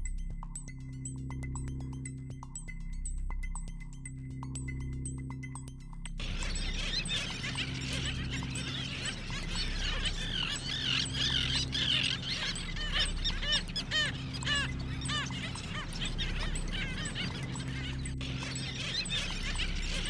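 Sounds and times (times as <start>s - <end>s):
low held music tones: 0.0s - 20.0s
mallet-like music notes: 0.0s - 20.0s
flock of birds calling: 6.2s - 20.0s.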